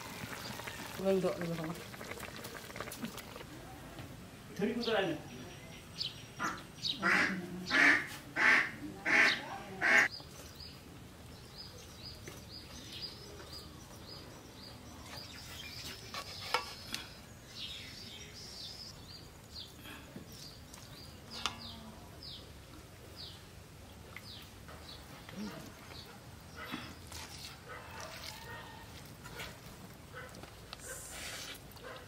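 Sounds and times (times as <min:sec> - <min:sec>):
duck quacking: 0:06.4 - 0:10.1.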